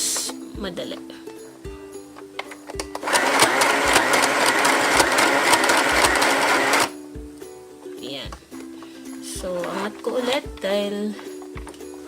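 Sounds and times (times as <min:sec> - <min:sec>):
sewing machine stitching: 0:03.0 - 0:06.9.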